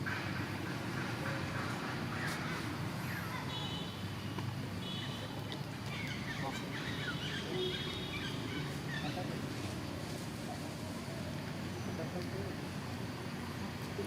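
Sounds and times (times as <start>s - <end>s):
high chirping animal calls: 5.9s - 9.3s.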